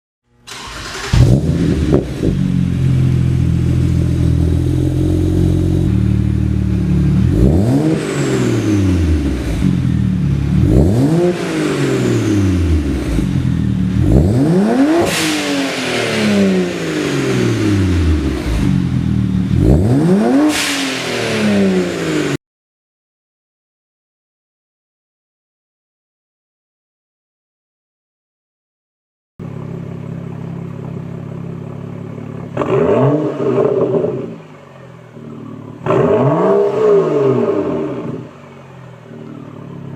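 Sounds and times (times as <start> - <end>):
car engine idling: 0.5 - 8.0, 8.8 - 14.6, 16.6 - 19.8, 29.4 - 32.6, 34.0 - 35.9, 37.6 - 39.9
car engine revving: 0.5 - 22.4, 29.5 - 39.9
car exhaust burst: 0.5 - 22.4.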